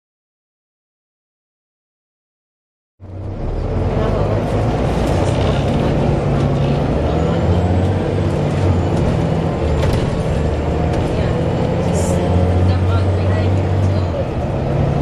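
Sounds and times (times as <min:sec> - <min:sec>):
bus engine drone: 0:03.0 - 0:15.0
bus rattles: 0:03.0 - 0:15.0.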